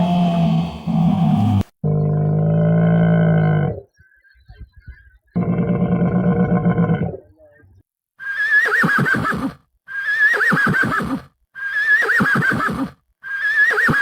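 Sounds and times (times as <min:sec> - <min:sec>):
horse whinnying: 0:08.2 - 0:14.0.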